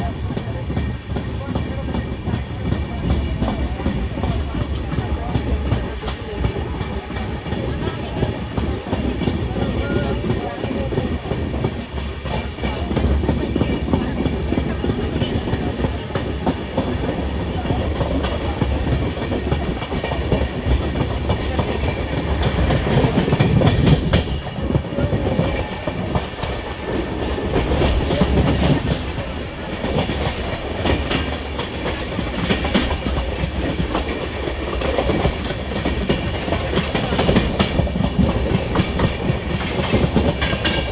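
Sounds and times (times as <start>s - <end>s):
steady train rumble: 0.0s - 40.9s
train wheels clattering over joints: 0.0s - 40.9s.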